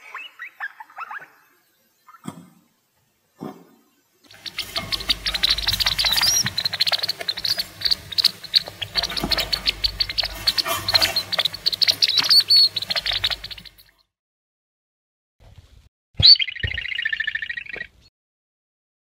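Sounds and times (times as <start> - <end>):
degus squeaking: 4.3 - 13.9
rising squeals: 4.3 - 13.9.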